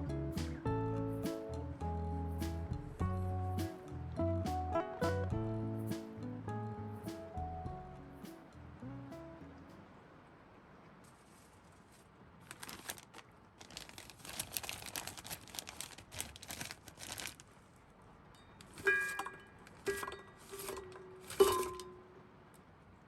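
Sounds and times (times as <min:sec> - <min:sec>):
packaging crinkling: 0:12.4 - 0:17.6
hard items clinking: 0:18.5 - 0:22.0.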